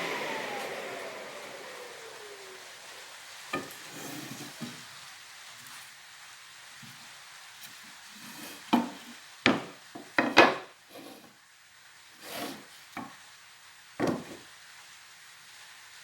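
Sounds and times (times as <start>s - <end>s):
faint steady hiss: 0.0s - 16.0s
wood knocking and scraping: 3.5s - 4.8s, 7.6s - 11.3s, 12.2s - 13.2s, 14.0s - 14.4s.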